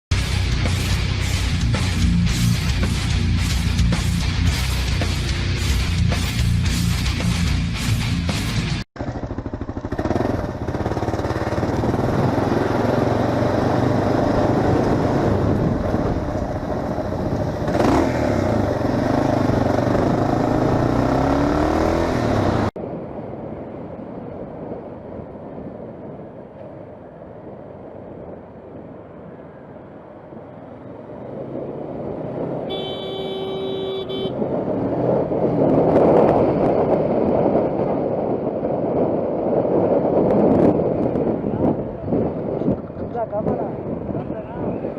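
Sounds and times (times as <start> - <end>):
motorcycle engine revving: 0.1 - 22.8, 31.6 - 38.2
horn honking: 32.6 - 34.5
wind rushing: 33.5 - 44.9.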